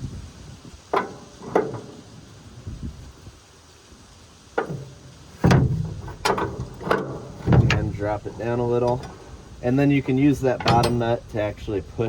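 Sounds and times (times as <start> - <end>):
wrench knocking on metal: 10.6 - 11.2.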